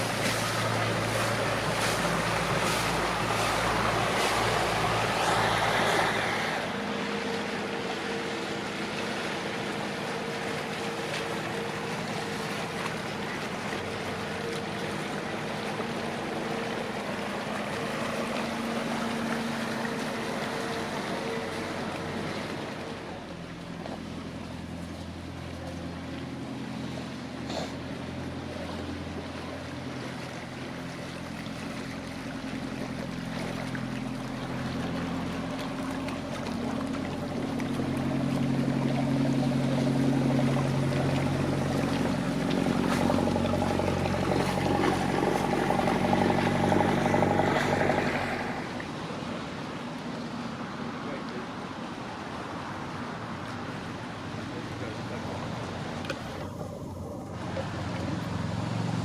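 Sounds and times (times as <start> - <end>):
boat engine passing: 0.0 - 59.0.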